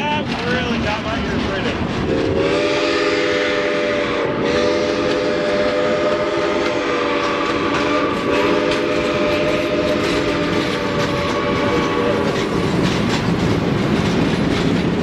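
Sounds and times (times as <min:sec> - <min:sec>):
steam whistle blasts: 0:02.1 - 0:12.2.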